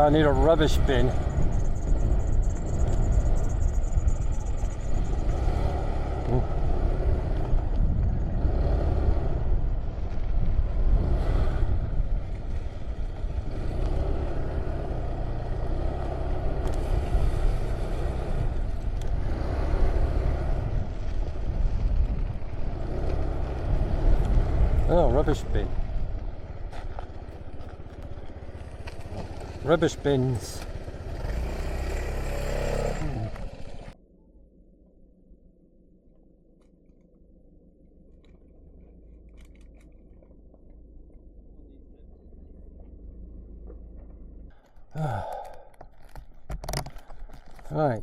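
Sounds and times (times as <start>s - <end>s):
wind rumble on microphone: 0.0s - 29.4s
motorcycle engine running: 0.0s - 36.7s, 37.6s - 45.2s.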